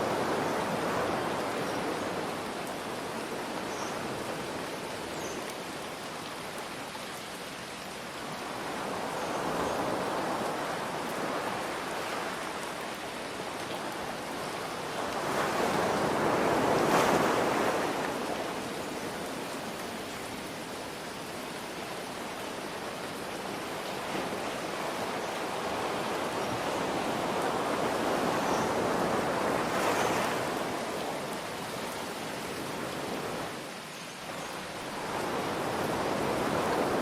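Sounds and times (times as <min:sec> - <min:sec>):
rain hiss: 0:00.0 - 0:37.0
ocean waves washing in: 0:13.6 - 0:20.4, 0:34.6 - 0:37.0.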